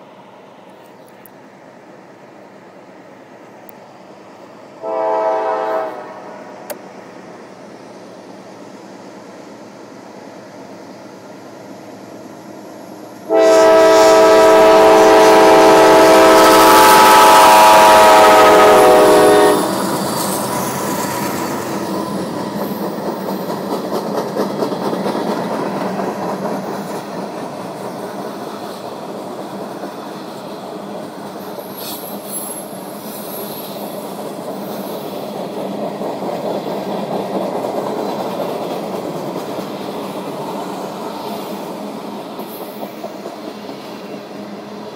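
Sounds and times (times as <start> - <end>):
train wheels rumbling on rails: 0.0 - 44.9
locomotive air horn blast: 4.8 - 6.6, 13.3 - 19.7.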